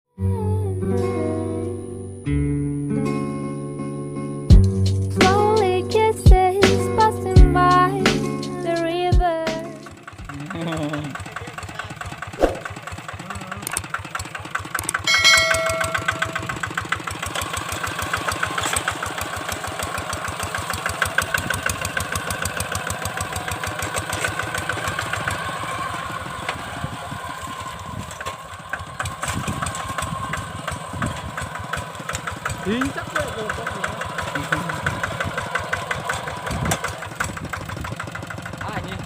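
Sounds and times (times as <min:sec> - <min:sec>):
diesel engine chugging: 0:04.5 - 0:39.0
short high tone: 0:15.1 - 0:16.6.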